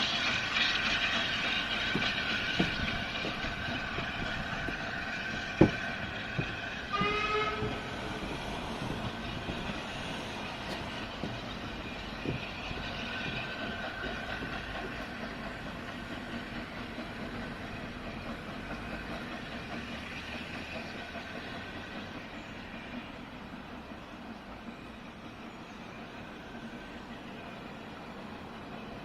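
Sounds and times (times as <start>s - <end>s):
train running: 0.0s - 29.0s
knocks: 1.8s - 8.0s.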